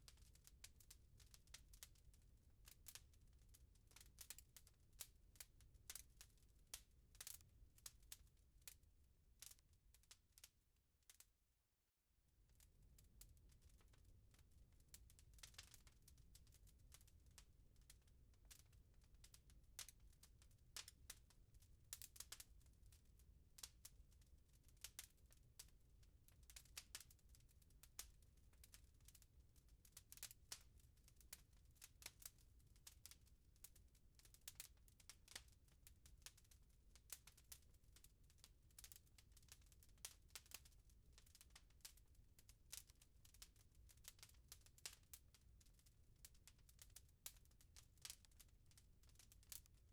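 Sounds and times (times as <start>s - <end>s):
fire crackling and popping: 4.0s - 4.4s, 13.1s - 18.8s, 21.9s - 23.0s, 24.8s - 25.6s, 26.4s - 29.2s, 29.8s - 37.7s, 38.7s - 43.4s, 49.3s - 49.7s.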